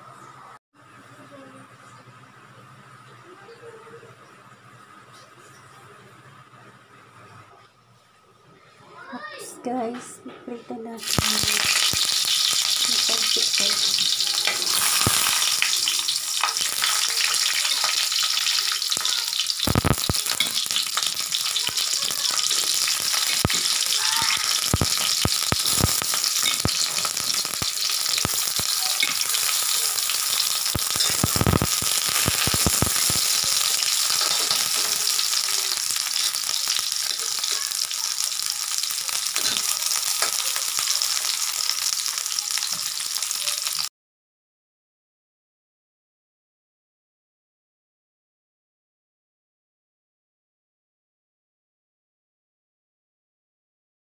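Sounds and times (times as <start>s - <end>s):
eggplant sizzling in hot oil: 11.0s - 43.9s.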